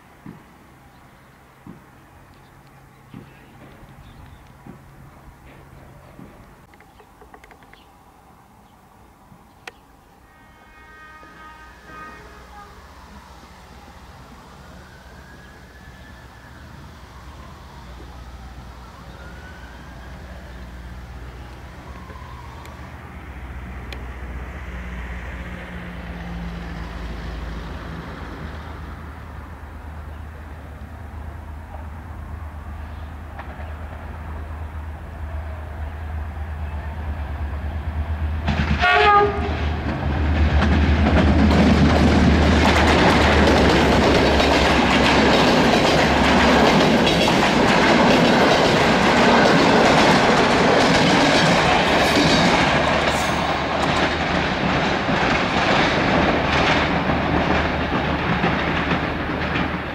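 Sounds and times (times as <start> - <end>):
locomotive engine rumbling: 0.0 - 59.9
clickety-clack over rail joints: 0.2 - 0.6, 1.6 - 7.9, 33.2 - 34.5, 38.0 - 59.9
train wheel rumble: 1.6 - 59.9
train horn blast: 10.2 - 13.1, 38.8 - 39.7.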